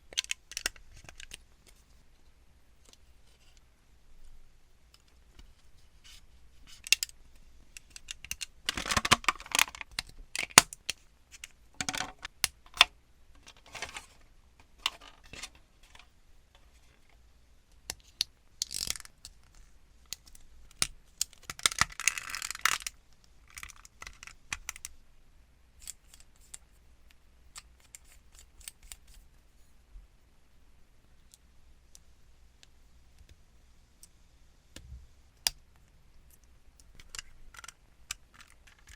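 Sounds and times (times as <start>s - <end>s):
plastic parts clicking and snipping: 0.1s - 1.8s, 6.7s - 7.2s, 7.8s - 17.0s, 17.8s - 24.9s, 36.3s - 38.9s
plastic handling noise: 7.8s - 17.2s, 36.9s - 38.9s.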